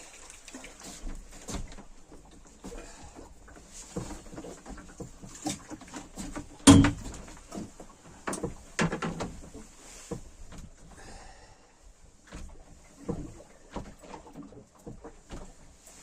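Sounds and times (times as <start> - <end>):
knocks and clatter in boat: 0.4 - 16.0.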